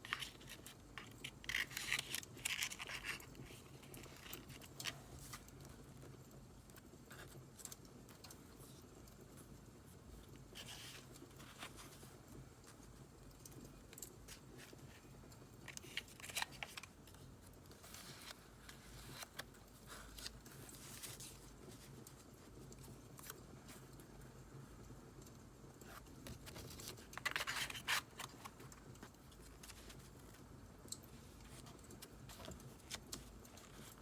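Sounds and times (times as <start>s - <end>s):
paper being handled: 0.0s - 5.5s, 15.7s - 23.4s, 25.9s - 30.4s, 31.2s - 34.0s.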